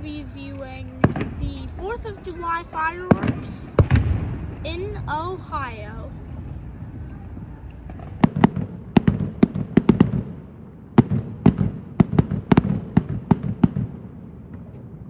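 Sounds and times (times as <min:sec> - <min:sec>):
low rumble: 0:00.0 - 0:09.8
fireworks bangs: 0:00.9 - 0:15.0.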